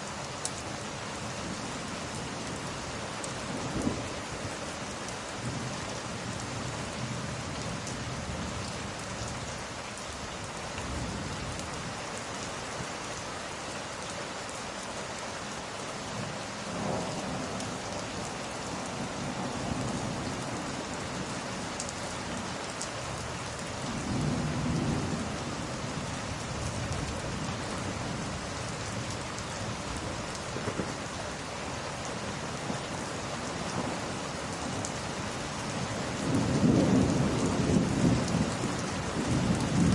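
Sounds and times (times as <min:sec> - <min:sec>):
steady rain falling: 0:00.0 - 0:39.9
thunder rumbling: 0:16.7 - 0:17.8, 0:23.8 - 0:28.3, 0:36.0 - 0:39.9.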